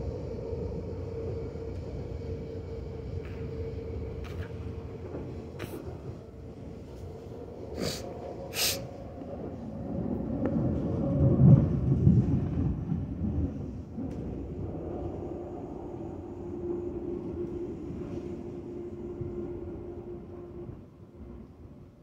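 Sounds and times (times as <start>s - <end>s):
train wheels rumbling on track: 0.0s - 22.0s
short hisses: 7.8s - 8.9s.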